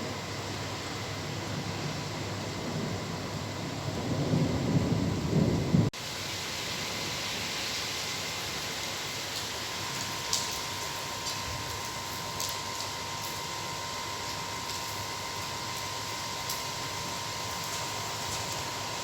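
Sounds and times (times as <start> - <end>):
rain falling: 0.0 - 19.0
thunder rumbling: 2.6 - 5.9.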